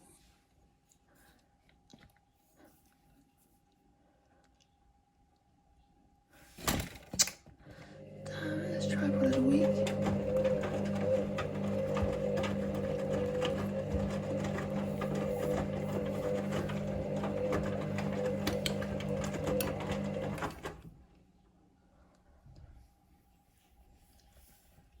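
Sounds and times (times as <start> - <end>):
washing machine motor humming: 7.7 - 21.0.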